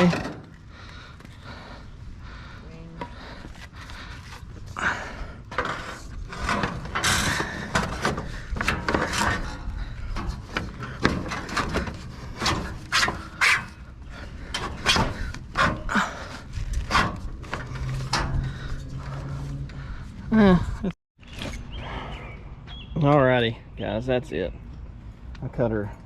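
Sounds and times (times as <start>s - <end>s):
knocks clatter and rubbing: 3.0s - 20.2s.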